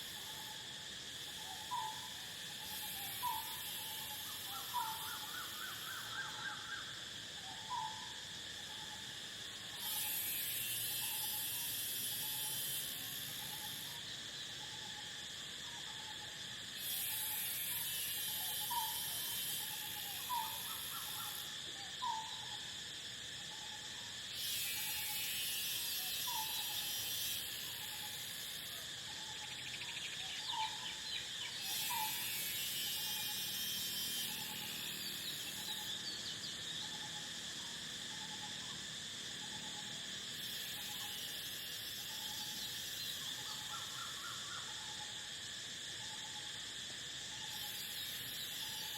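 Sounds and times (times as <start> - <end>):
crickets chirring: 0.0 - 48.9
high insect chorus: 0.0 - 48.9.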